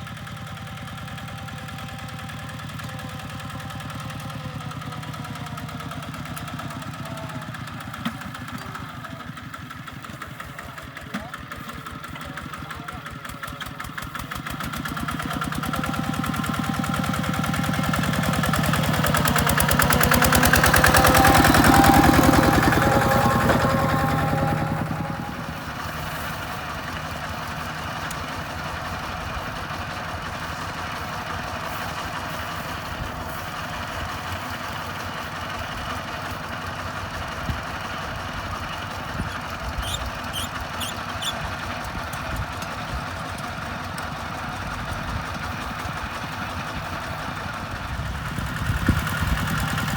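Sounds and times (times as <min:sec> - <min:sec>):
diesel engine chugging: 0:00.0 - 0:49.9.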